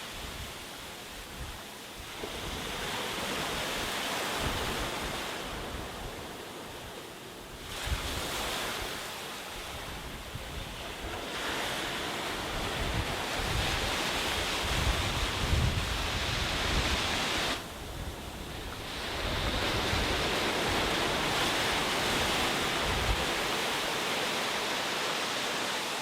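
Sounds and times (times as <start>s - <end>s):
sea waves breaking on a beach: 0.0s - 26.0s.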